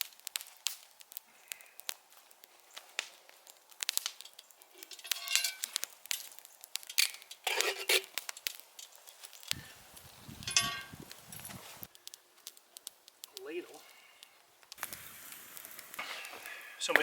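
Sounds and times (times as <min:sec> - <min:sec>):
campfire crackling and popping: 0:00.0 - 0:17.0
metal cookware scraping and clinking: 0:04.2 - 0:05.7, 0:06.9 - 0:08.1, 0:10.4 - 0:11.0.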